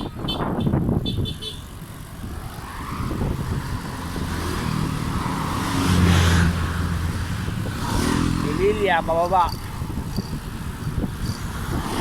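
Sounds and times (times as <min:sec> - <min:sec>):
road and wind noise: 0:00.0 - 0:12.0
vehicle engine passing: 0:02.2 - 0:10.3.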